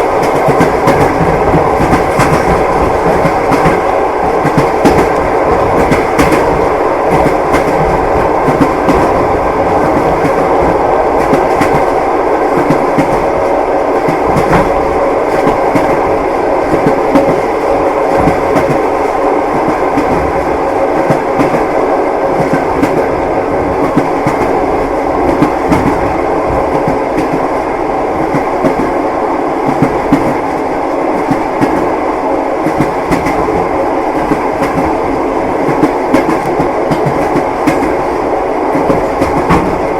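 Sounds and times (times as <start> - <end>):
train carriage rumble: 0.0 - 39.9.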